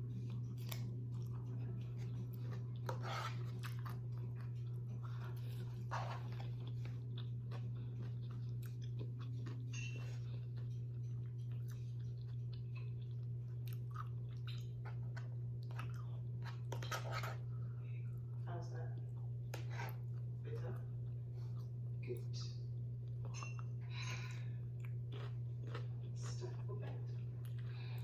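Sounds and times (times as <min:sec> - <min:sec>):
steady low hum: 0:00.0 - 0:28.0
person chewing with mouth clicks: 0:00.2 - 0:16.9, 0:24.7 - 0:28.0.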